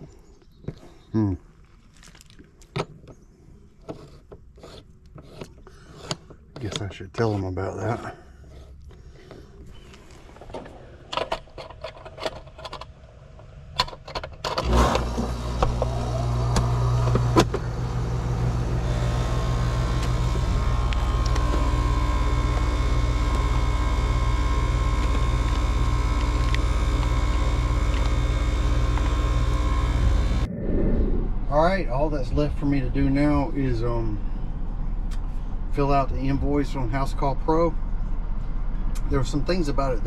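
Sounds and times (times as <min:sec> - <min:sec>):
vehicle engine starting and idling: 0:10.1 - 0:30.5.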